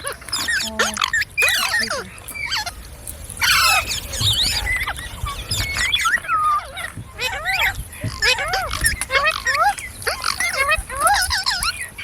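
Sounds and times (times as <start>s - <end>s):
parrot harsh squawk: 0.0s - 2.8s, 3.4s - 5.0s
parrot whistles and chatter: 0.0s - 12.0s.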